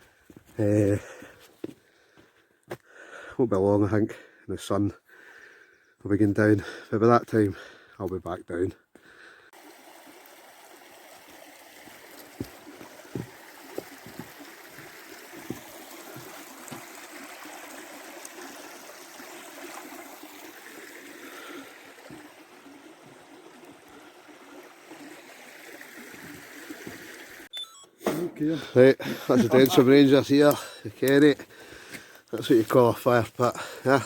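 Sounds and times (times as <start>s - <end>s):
running water stream: 9.0s - 27.5s, 28.1s - 34.0s.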